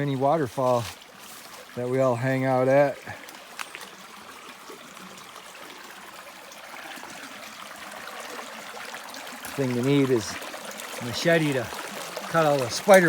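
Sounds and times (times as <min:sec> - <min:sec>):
river running over rocks: 0:00.0 - 0:13.0.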